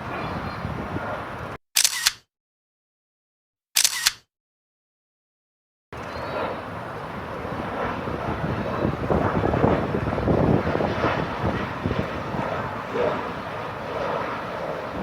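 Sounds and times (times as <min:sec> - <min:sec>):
jet engines rushing: 0:00.0 - 0:01.6, 0:06.0 - 0:15.0
wind buffeting microphone: 0:00.0 - 0:01.6, 0:06.0 - 0:15.0.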